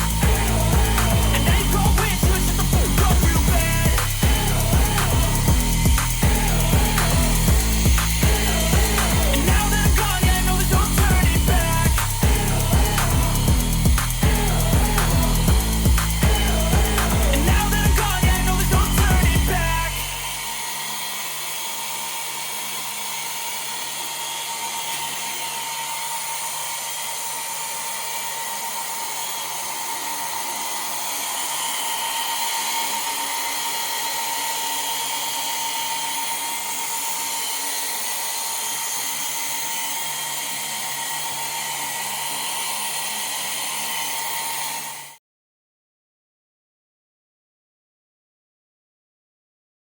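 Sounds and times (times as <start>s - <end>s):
small electric motor whining: 0.0s - 45.2s.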